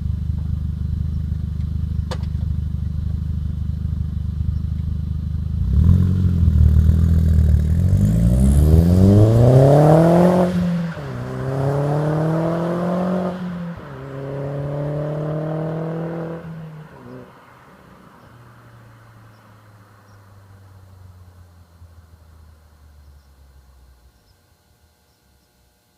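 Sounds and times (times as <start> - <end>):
car engine accelerating hard: 5.3 - 22.4.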